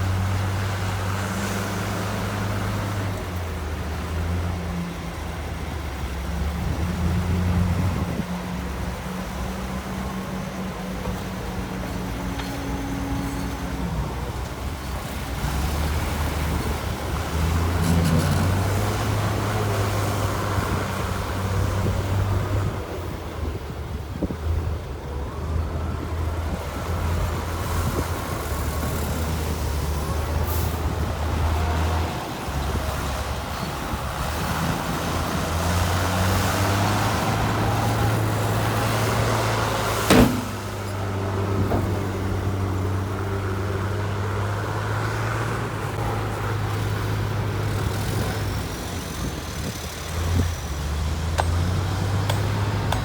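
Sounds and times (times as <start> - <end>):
heavy diesel machinery revving: 0.0 - 23.6, 25.4 - 53.0
sharp metal clank: 40.1 - 41.0.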